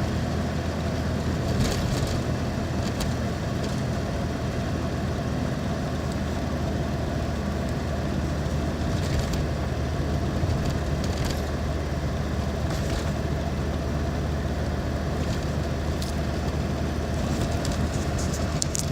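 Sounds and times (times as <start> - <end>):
car engine hum: 0.0 - 18.9.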